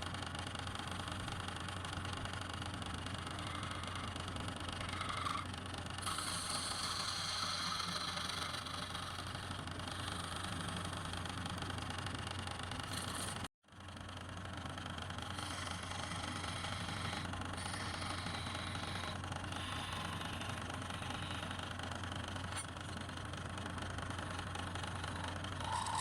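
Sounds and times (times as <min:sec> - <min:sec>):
lathe humming and hissing: 0:15.2 - 0:22.7, 0:24.4 - 0:26.0.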